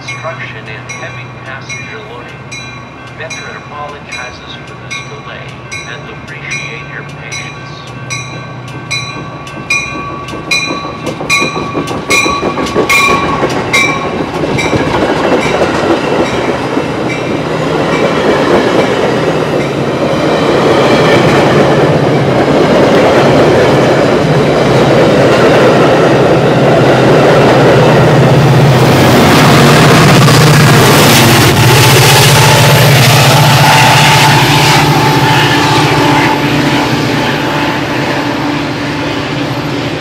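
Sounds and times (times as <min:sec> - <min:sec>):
bell ringing: 0:00.0 - 0:15.6
train wheels on rails: 0:00.0 - 0:40.0.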